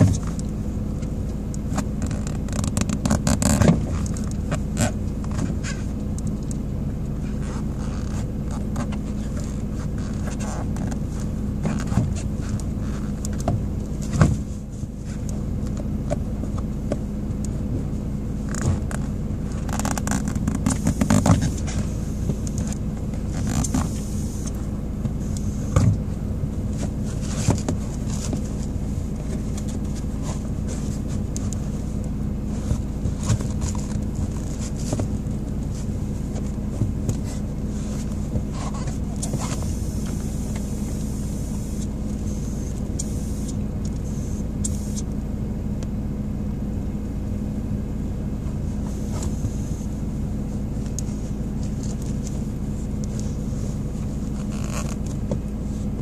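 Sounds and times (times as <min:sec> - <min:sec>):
car engine running: 0:00.0 - 0:56.0
shoe scraping and knocking on pedals: 0:18.5 - 0:26.2, 0:26.8 - 0:31.6, 0:32.5 - 0:42.0, 0:54.4 - 0:56.0.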